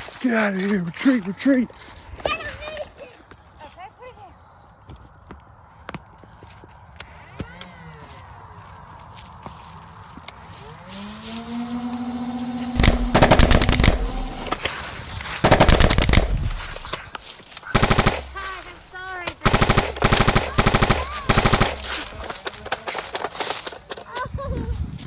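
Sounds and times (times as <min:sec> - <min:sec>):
automatic gunfire bursts: 0:12.8 - 0:14.7, 0:15.4 - 0:17.0, 0:17.7 - 0:18.8, 0:19.4 - 0:22.2.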